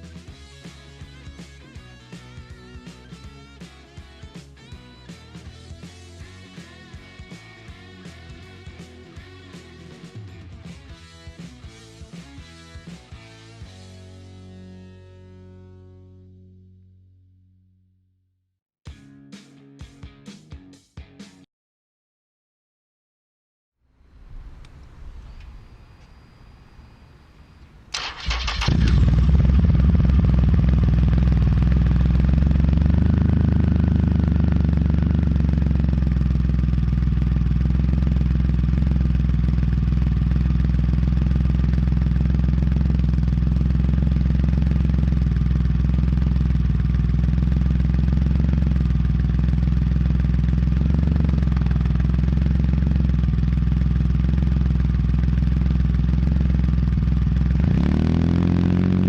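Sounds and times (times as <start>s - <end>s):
motorcycle engine idling: 24.1s - 59.0s.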